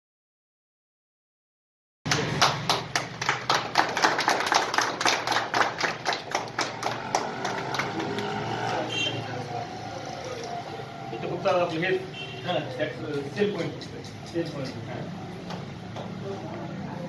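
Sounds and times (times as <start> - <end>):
sharp claps: 2.1 - 8.6
faint voices: 7.6 - 17.0.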